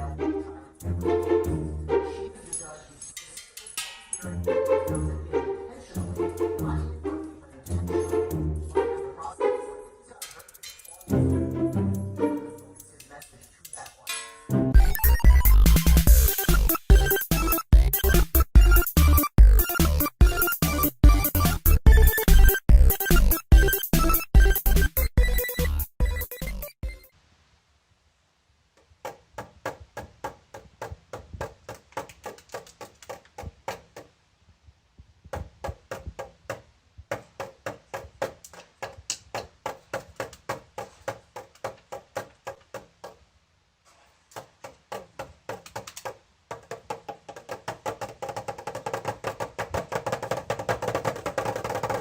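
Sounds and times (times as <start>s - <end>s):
rapid rhythmic knocking: 14.7s - 27.1s, 29.0s - 34.2s, 35.3s - 43.3s, 44.3s - 52.0s.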